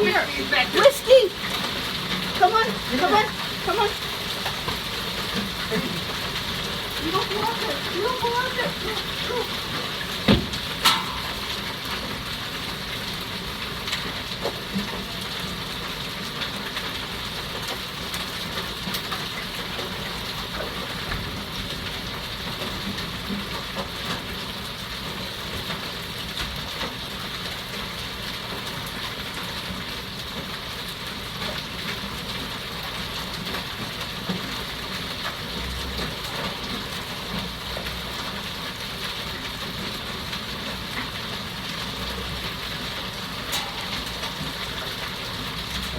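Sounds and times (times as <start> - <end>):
hail and rain pelting roofs: 0.0 - 45.9
sharp hailstone impacts: 10.3 - 11.8.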